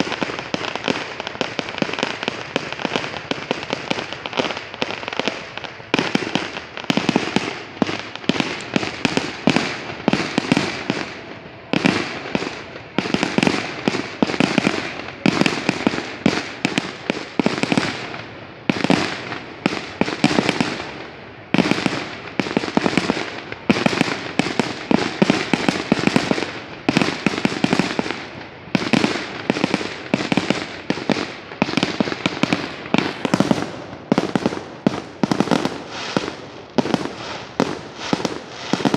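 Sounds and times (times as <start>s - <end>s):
fireworks bangs and crackles: 0.0s - 38.9s.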